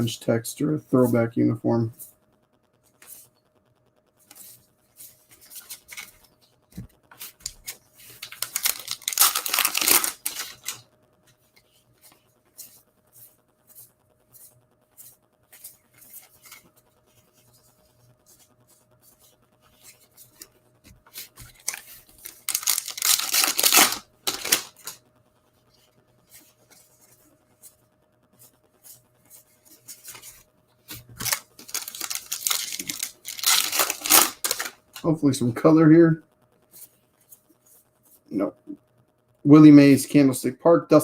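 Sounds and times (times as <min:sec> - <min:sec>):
cards rustling and sliding: 0:04.3 - 0:10.8, 0:11.6 - 0:16.7, 0:21.1 - 0:25.0, 0:28.8 - 0:35.1
cards clicking and flicking: 0:05.3 - 0:10.8, 0:21.2 - 0:25.0, 0:29.9 - 0:35.1.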